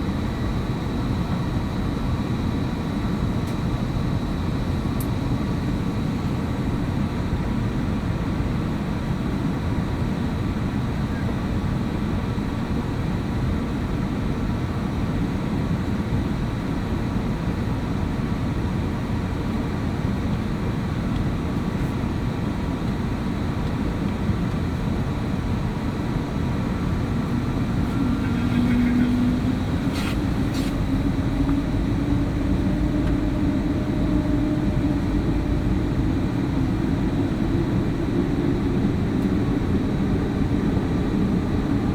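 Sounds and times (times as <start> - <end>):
aircraft engine and airflow rumble: 0.0 - 41.9
low hum rising in pitch: 26.1 - 41.9.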